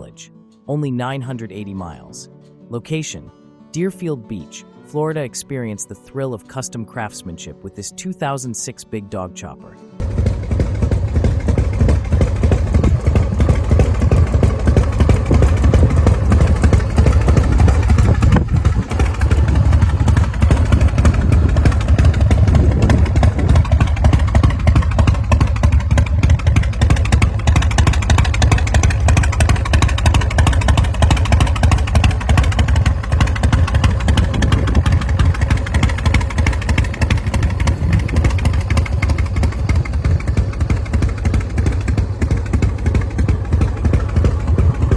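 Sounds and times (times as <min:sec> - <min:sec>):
motorcycle engine deep exhaust: 0:10.0 - 0:44.9.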